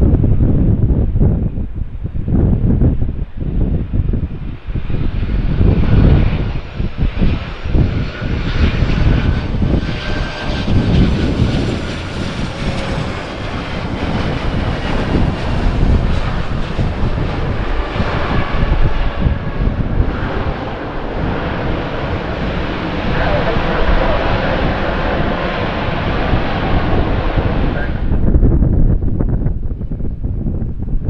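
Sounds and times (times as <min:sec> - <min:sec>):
wind buffeting microphone: 0:00.0 - 0:31.0
jet engines whining: 0:03.1 - 0:28.4.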